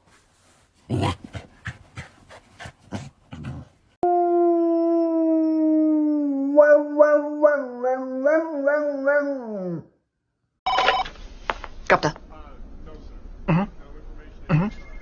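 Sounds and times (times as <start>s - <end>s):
dog howling: 4.0s - 9.9s.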